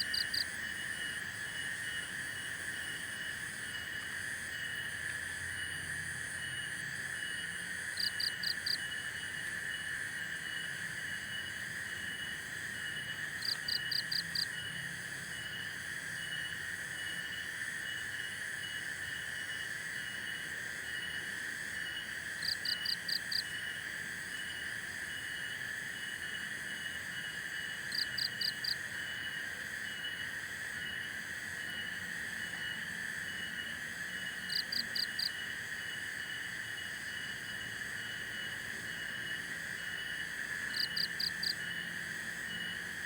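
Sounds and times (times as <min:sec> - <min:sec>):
insect chirping: 0:00.0 - 0:43.0
rapid high insect chirps: 0:27.7 - 0:28.9, 0:34.5 - 0:35.6, 0:39.8 - 0:42.8.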